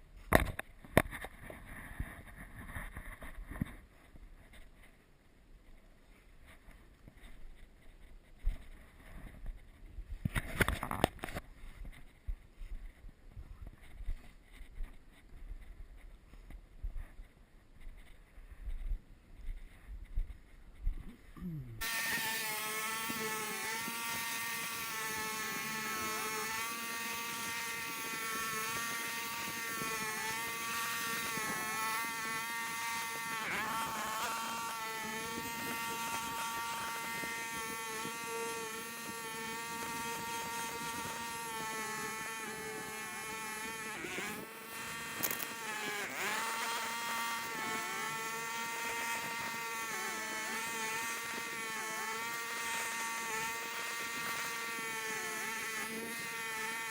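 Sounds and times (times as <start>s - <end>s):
small engine running: 21.8s - 56.9s.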